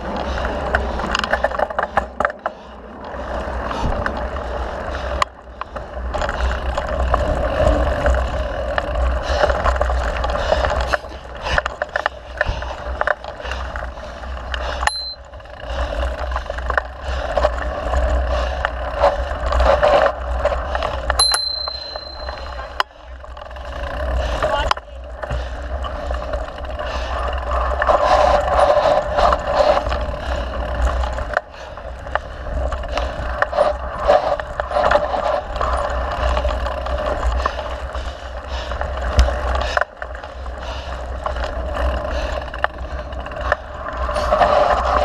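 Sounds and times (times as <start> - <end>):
bike rattles and clicks: 0.0 - 45.0
bike tyres on dirt trail: 0.0 - 45.0
wind rumble on microphone: 2.9 - 45.0
bicycle bell ringing: 14.8 - 15.3, 21.2 - 22.8.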